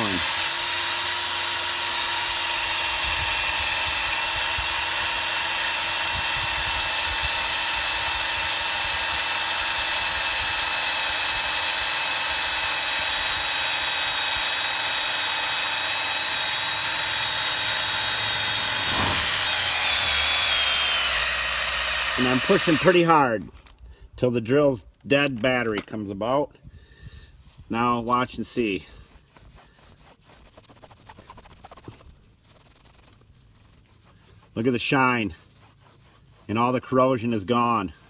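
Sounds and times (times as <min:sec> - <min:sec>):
drill motor whine: 0:00.0 - 0:23.0
buffing wheel polishing hiss: 0:17.0 - 0:22.9.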